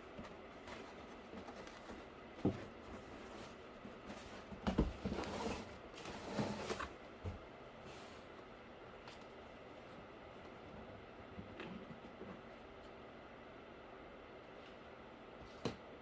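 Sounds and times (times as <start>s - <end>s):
cardboard scraping rustle: 0.5s - 7.0s.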